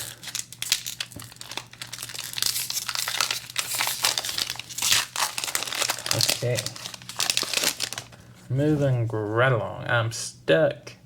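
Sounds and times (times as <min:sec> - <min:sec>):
foil wrapper crinkling: 0:00.0 - 0:08.8.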